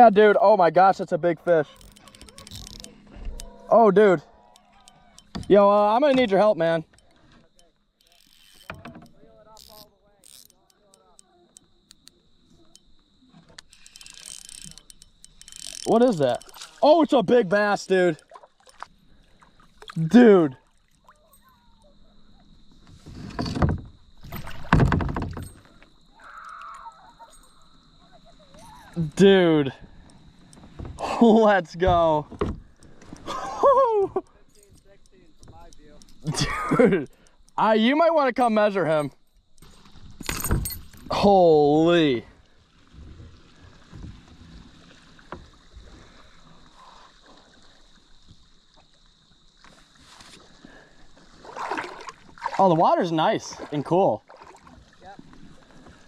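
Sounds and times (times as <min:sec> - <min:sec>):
water splashing against kayak: 0:01.4 - 0:56.0.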